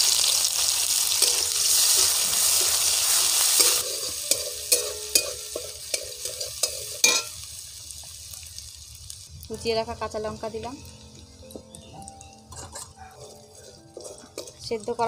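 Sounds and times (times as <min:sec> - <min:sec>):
spices sizzling in hot oil: 0:00.0 - 0:15.0
metal spatula scraping a pan: 0:01.2 - 0:07.4, 0:12.5 - 0:15.0.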